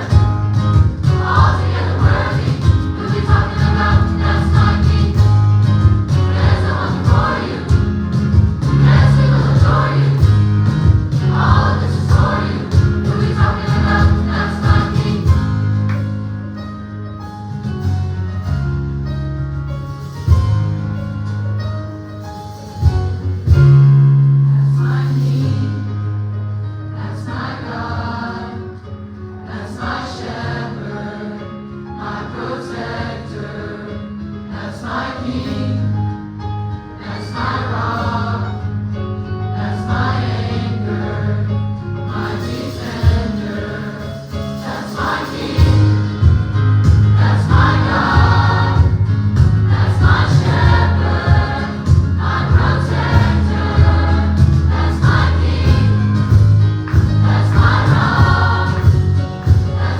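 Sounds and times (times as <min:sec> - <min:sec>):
gospel choir singing: 0:00.0 - 0:16.0, 0:24.5 - 0:26.0, 0:26.9 - 0:59.9.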